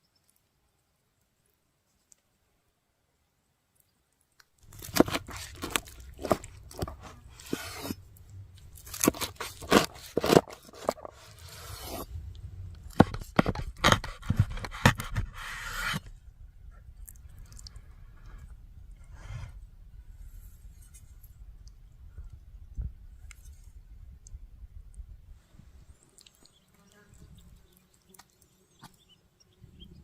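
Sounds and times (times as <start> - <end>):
scraping crunching and tearing: 4.6 - 12.1, 12.7 - 16.1.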